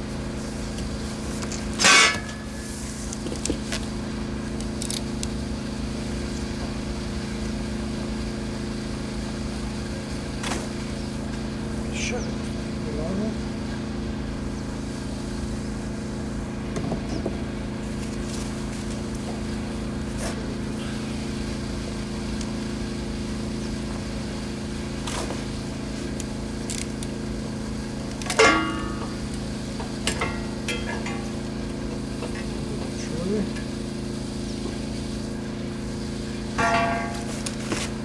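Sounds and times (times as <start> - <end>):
motor hum: 0.0 - 38.0
metal parts clanking: 1.5 - 2.5, 28.2 - 29.4, 30.1 - 31.5, 36.6 - 38.0.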